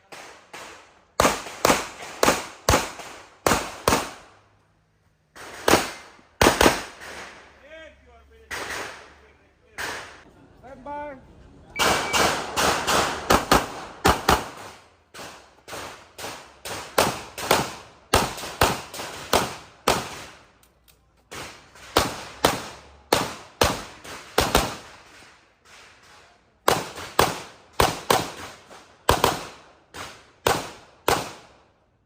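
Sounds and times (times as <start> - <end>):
pistol shots: 0.1 - 4.3, 5.4 - 7.5, 11.8 - 20.4, 21.3 - 24.9, 26.6 - 31.5.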